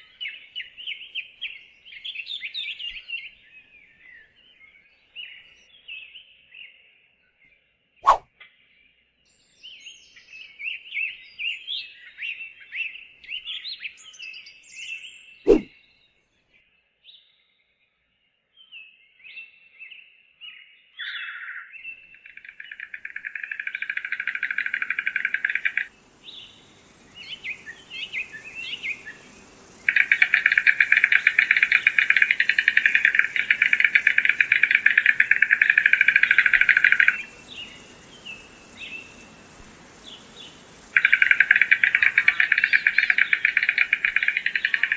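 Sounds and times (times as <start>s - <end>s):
birds chirping: 22.2s - 44.9s
high insect hiss: 22.2s - 44.9s
rapid buzzing trills: 22.4s - 44.9s.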